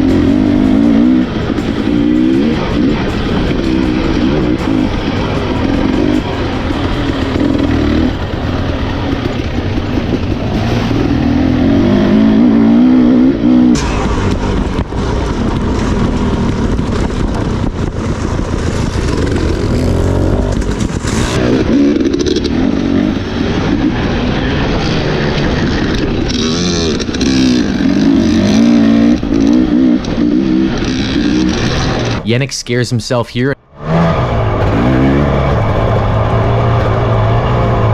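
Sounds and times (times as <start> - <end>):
dirt bike engine revving: 0.0 - 32.2, 33.7 - 37.9
sharp knocks: 13.7 - 17.4.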